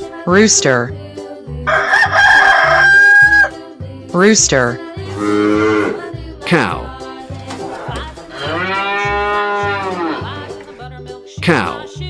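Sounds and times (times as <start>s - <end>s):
background music with beat: 0.0s - 12.0s
cow mooing: 5.0s - 6.1s, 7.8s - 10.6s.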